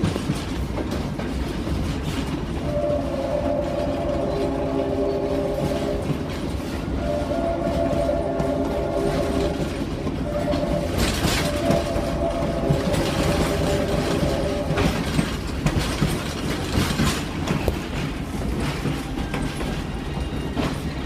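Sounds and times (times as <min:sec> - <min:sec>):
train rumble and rail clatter: 0:00.0 - 0:21.0
two-note tone: 0:07.0 - 0:14.8.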